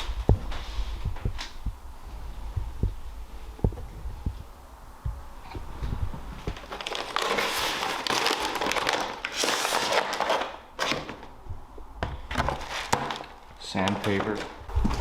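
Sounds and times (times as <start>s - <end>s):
sandpaper crinkling and rustling: 6.4s - 10.5s.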